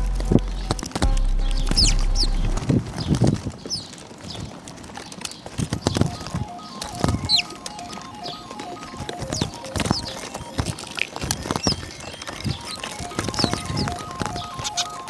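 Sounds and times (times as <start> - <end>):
small birds chirping: 0.0 - 15.0
soft background music: 6.1 - 11.6.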